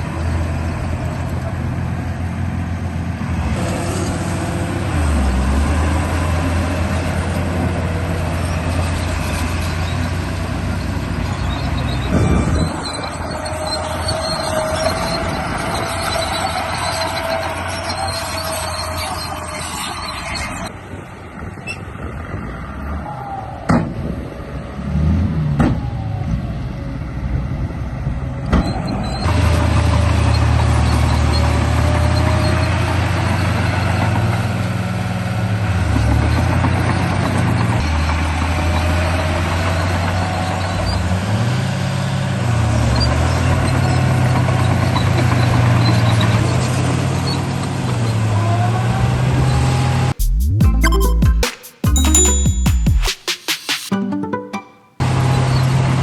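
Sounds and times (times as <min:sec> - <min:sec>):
toy bulldozer engine droning: 0:00.0 - 0:20.8.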